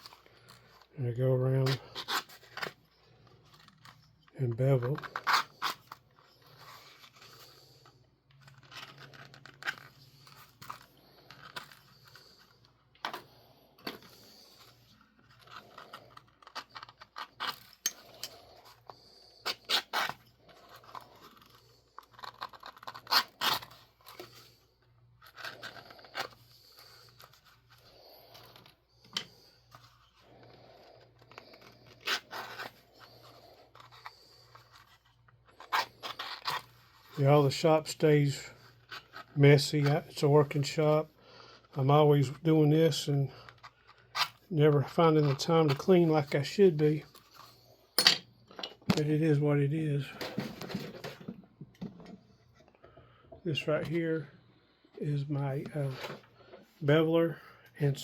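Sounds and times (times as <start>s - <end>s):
edge beveler scraping leather: 4.6s - 12.6s, 13.2s - 24.6s.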